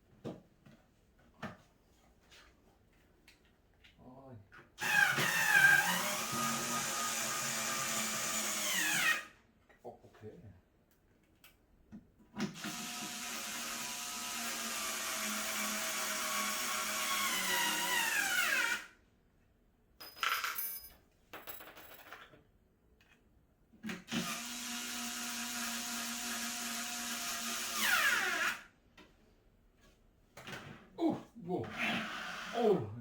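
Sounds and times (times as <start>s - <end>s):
power drill whining: 4.8s - 9.3s, 12.6s - 18.9s, 24.1s - 28.6s, 31.7s - 32.6s.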